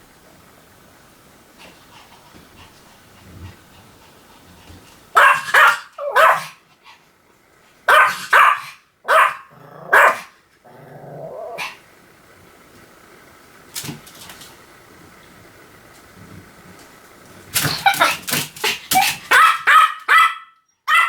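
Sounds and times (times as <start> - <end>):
small dog yapping: 5.2 - 6.6, 7.9 - 10.3, 17.6 - 21.0
dog growling: 8.0 - 11.8.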